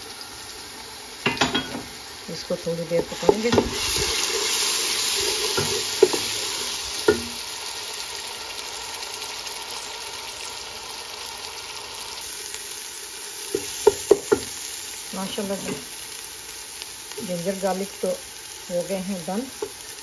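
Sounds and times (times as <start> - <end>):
paste sizzling in hot oil: 0.0 - 20.0
wooden spoon knocking on pot: 3.0 - 3.8, 5.5 - 6.3, 7.0 - 7.4, 13.6 - 14.5.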